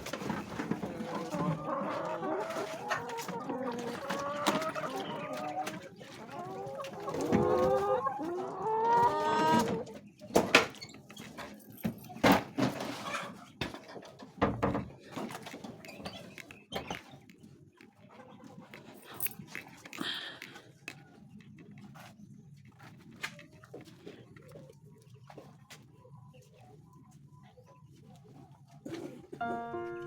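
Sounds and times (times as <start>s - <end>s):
hens clucking: 0.0s - 10.4s, 12.6s - 14.4s, 15.1s - 21.7s.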